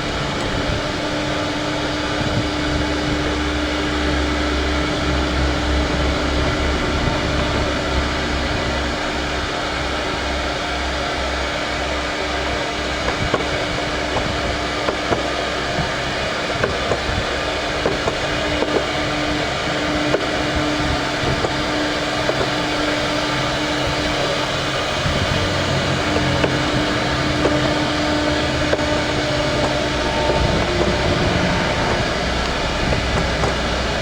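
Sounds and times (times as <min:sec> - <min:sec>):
power tool motor whining: 0:12.4 - 0:34.0.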